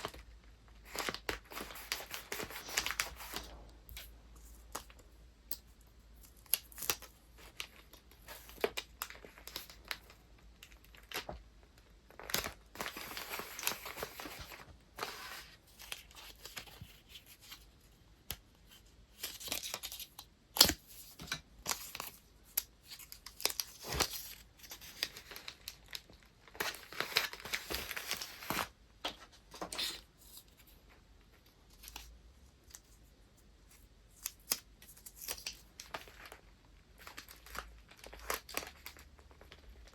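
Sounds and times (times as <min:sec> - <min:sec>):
paper crinkling and tearing: 0:00.8 - 0:04.1.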